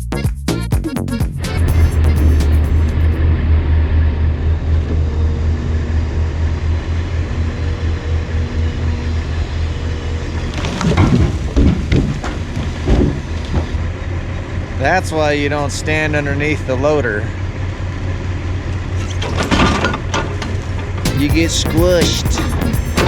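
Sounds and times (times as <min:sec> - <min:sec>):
heavy diesel engine running: 0:01.2 - 0:10.6, 0:11.4 - 0:23.0
logs thumping and knocking: 0:10.7 - 0:13.8.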